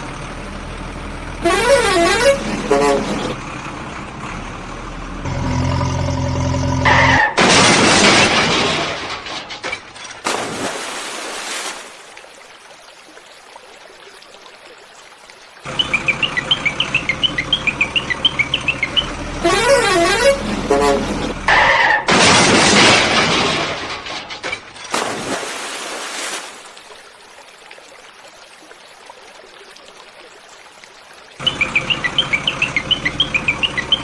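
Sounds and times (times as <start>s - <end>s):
warbling horn: 1.4s - 3.4s, 19.4s - 21.9s.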